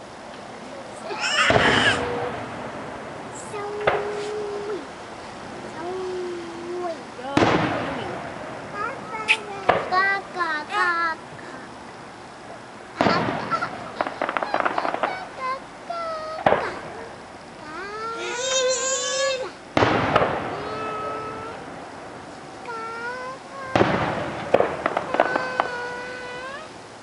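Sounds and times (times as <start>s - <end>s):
firework crackling: 0.0s - 27.0s
child whining and squealing: 1.0s - 2.4s, 3.4s - 4.9s, 13.0s - 19.6s, 20.6s - 21.6s, 25.1s - 26.8s
firework shells bursting: 1.3s - 5.8s, 7.3s - 10.8s, 12.9s - 17.4s, 19.7s - 26.6s.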